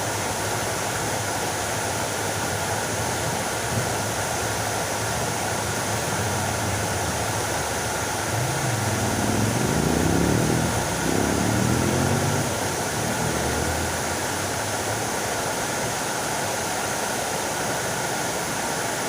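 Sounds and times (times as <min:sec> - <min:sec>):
fountain water splashing: 0:00.0 - 0:19.0
low hum rising and falling: 0:05.4 - 0:15.4.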